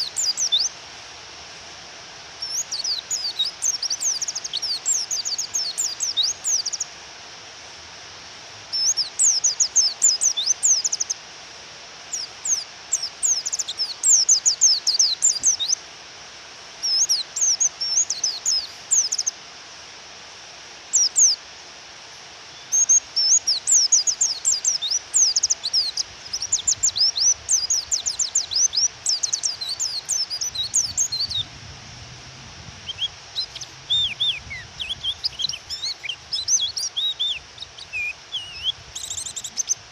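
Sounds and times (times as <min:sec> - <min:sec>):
rain hissing: 0:00.0 - 0:39.9
bird giving rapid falling chirps: 0:32.9 - 0:39.8.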